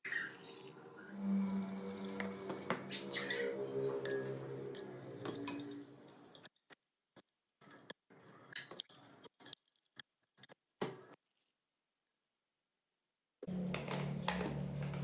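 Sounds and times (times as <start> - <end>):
background music with held notes: 1.0 - 6.2, 13.5 - 15.0.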